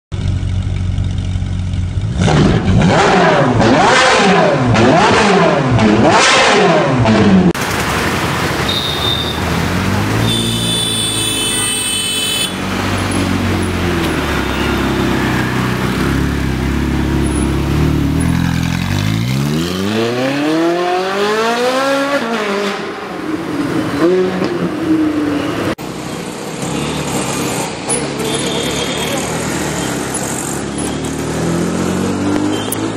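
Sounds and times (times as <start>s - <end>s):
car engine revving: 1.9s - 23.1s.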